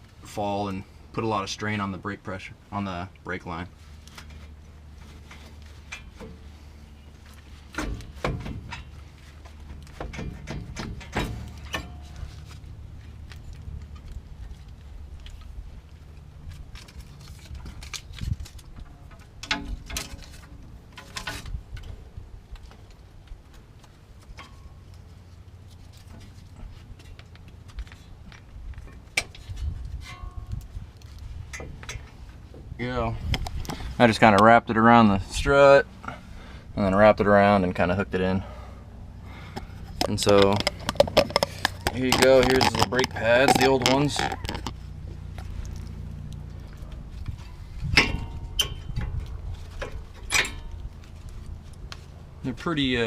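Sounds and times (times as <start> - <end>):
low steady rumble: 0.0 - 53.0
steady low hum: 0.0 - 53.0
metallic knocks and clicks: 39.6 - 44.8.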